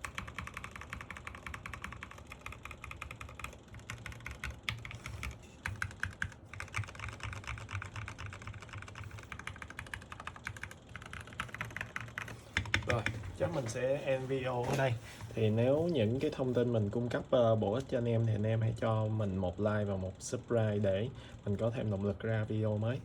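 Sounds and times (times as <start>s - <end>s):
fast typing on mechanical keyboard: 0.0s - 13.3s.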